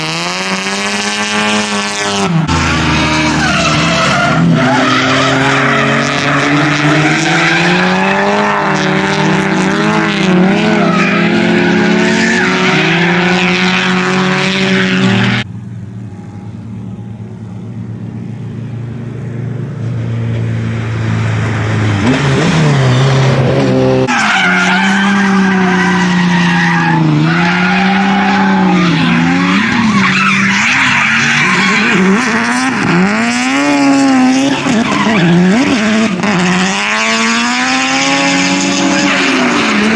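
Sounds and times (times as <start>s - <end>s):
car engine at high revs: 0.0s - 39.9s
tyre squeal: 2.5s - 9.3s, 24.1s - 36.3s.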